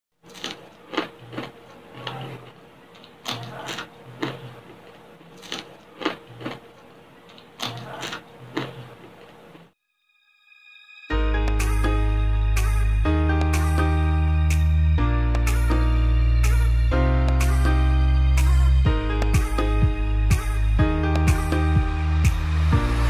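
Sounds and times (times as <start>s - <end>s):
crunchy food being chewed: 0.2s - 9.6s.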